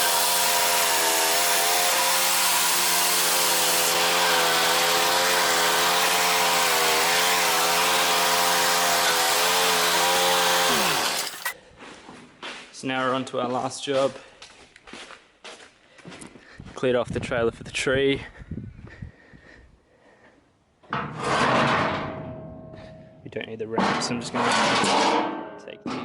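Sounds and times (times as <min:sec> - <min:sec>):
small petrol engine winding down: 0:00.0 - 0:11.5.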